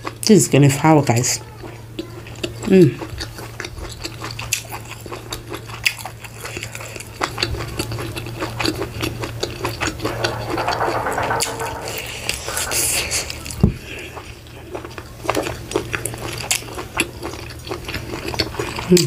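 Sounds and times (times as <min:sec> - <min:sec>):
chewing and lip-smacking: 0:02.0 - 0:08.0
steady low hum: 0:10.0 - 0:13.5.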